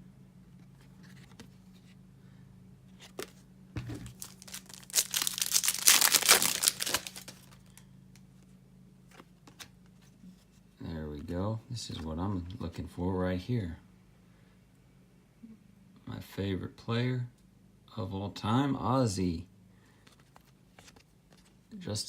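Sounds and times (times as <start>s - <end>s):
foil pack tearing and crinkling: 4.0s - 7.8s.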